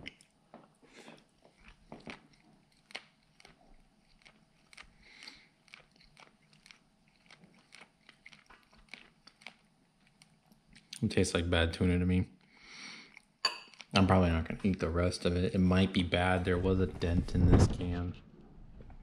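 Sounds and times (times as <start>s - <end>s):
person chewing with mouth clicks: 0.0s - 11.0s, 13.0s - 14.0s.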